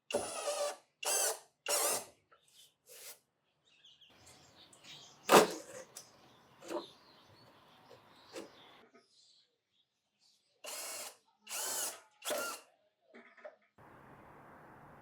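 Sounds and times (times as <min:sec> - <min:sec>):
cordless drill driving screws: 0:00.1 - 0:02.1, 0:10.7 - 0:12.6.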